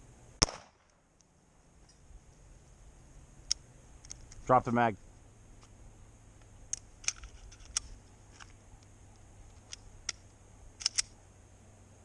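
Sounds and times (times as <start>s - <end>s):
handgun metallic clicks: 3.4s - 4.4s, 6.4s - 11.2s.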